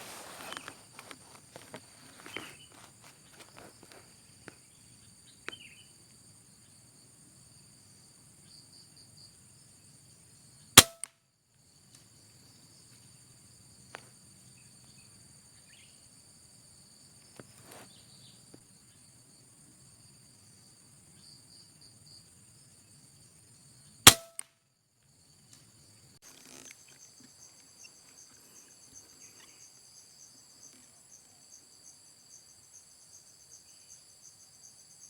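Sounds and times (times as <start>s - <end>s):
light rustles and clicks: 0.0s - 4.6s
high insect drone: 0.0s - 10.8s, 11.6s - 24.1s, 24.7s - 35.0s
gunshot: 10.8s - 11.1s, 24.1s - 24.4s.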